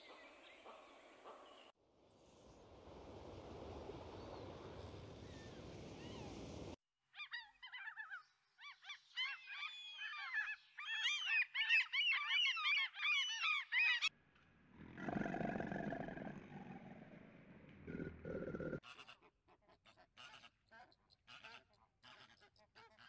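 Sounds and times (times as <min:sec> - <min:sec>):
low growling: 0:14.6 - 0:18.8.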